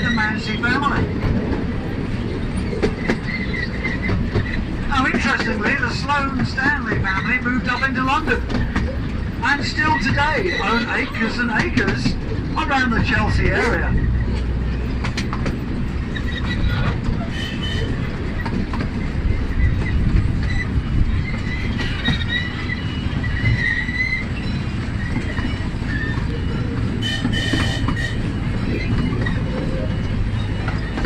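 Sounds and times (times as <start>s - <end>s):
ride train rumbling: 0.0s - 31.0s
wheels squealing on rails: 0.0s - 31.0s.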